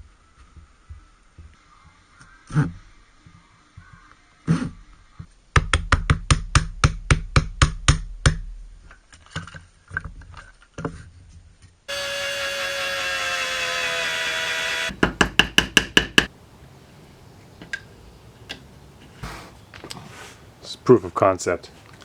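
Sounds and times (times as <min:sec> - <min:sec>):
power tool motor whine: 0:11.9 - 0:15.0
knocking on wood: 0:14.2 - 0:16.3.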